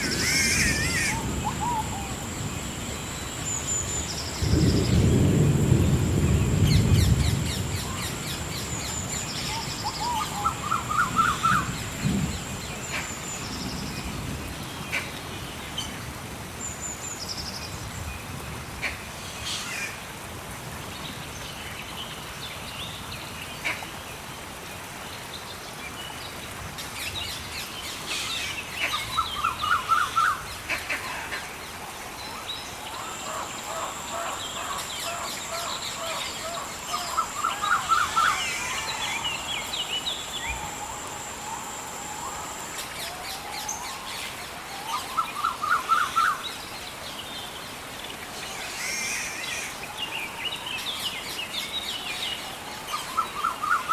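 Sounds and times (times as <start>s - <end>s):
birds calling: 0.0s - 11.9s, 32.2s - 44.1s
background hiss: 0.0s - 53.9s.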